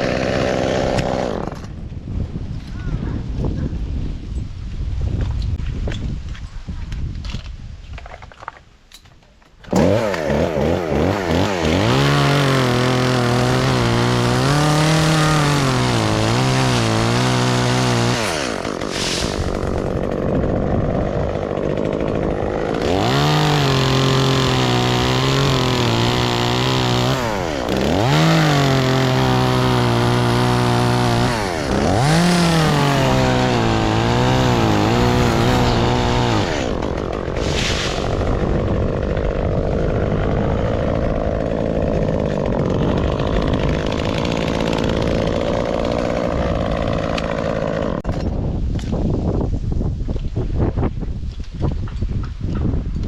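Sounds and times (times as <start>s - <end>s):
chainsaw engine revving: 0.0s - 1.7s, 9.6s - 48.1s.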